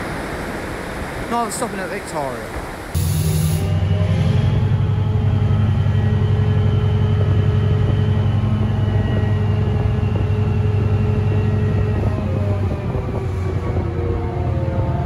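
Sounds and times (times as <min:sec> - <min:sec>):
diesel train engine drone: 0:02.5 - 0:15.0
faint high whine: 0:03.0 - 0:13.5.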